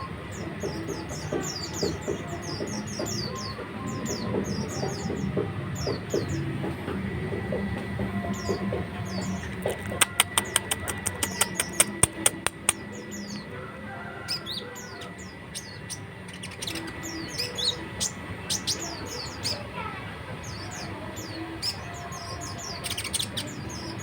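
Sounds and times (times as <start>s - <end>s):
songbird chattering song: 8.2s - 24.0s
sharp clicks: 9.5s - 12.8s.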